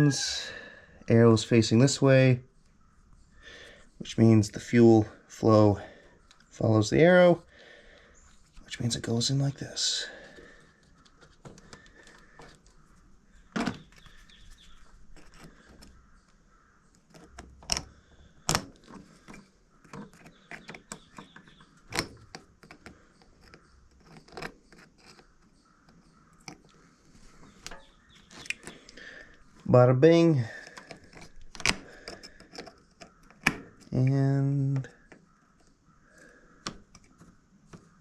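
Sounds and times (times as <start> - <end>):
sharp clicks and knocks: 16.9 - 26.8.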